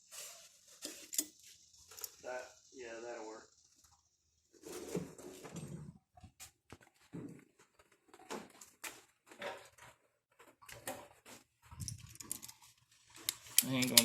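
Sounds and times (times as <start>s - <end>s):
hand tools clicking and clinking: 13.2s - 14.0s.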